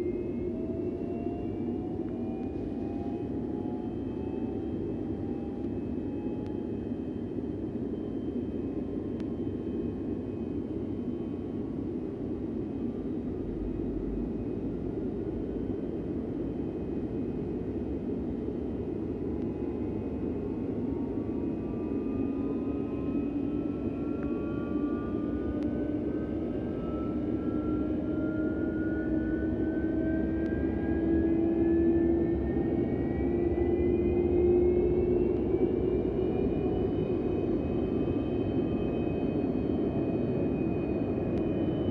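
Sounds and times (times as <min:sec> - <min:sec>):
rising engine whine: 0:00.0 - 0:41.9
jet engine spooling up: 0:18.2 - 0:41.9.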